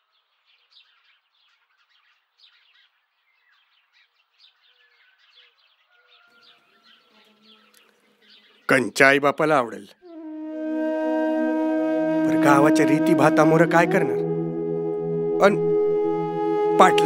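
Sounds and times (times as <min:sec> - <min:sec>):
faint birdsong chirps: 0:00.0 - 0:10.2
held tone: 0:10.1 - 0:17.0.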